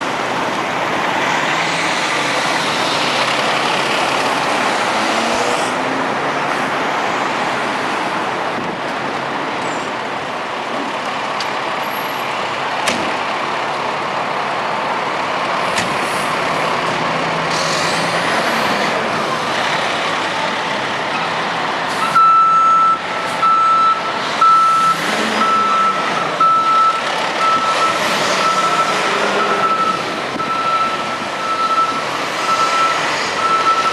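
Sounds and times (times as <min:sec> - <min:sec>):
fire engine running: 0:00.0 - 0:33.9
backup alarm beeping: 0:22.0 - 0:33.9.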